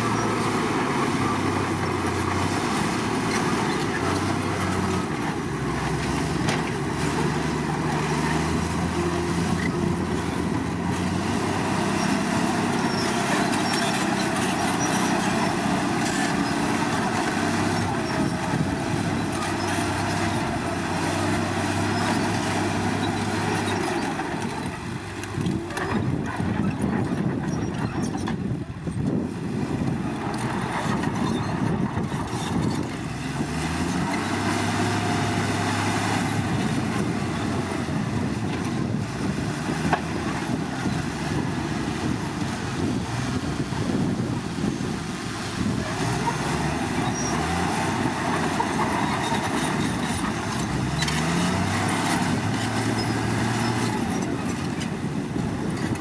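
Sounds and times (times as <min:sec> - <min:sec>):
track clatter: 0:00.0 - 0:29.1, 0:45.7 - 0:56.0
bulldozer diesel engine: 0:00.0 - 0:56.0.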